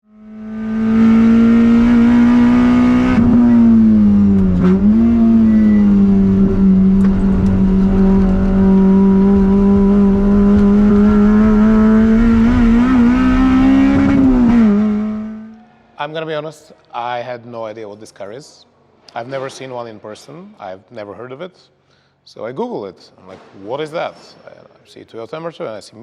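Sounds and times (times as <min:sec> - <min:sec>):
car engine revving hard: 0:00.1 - 0:15.6.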